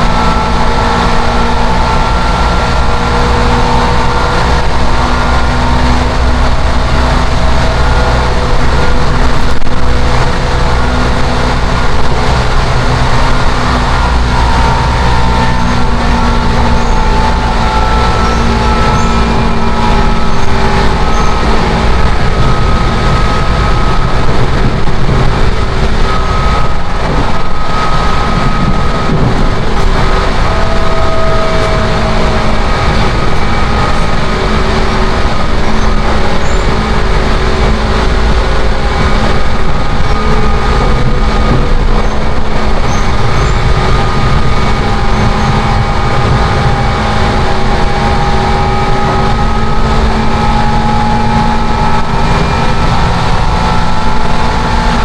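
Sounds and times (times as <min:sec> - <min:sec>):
faint steady whining tones: 0:00.0 - 0:55.0
train wheels rumbling: 0:00.0 - 0:55.0.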